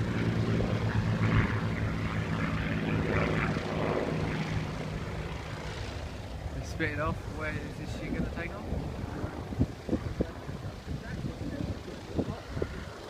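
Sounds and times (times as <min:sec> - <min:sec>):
propeller plane droning overhead: 0:00.0 - 0:13.0.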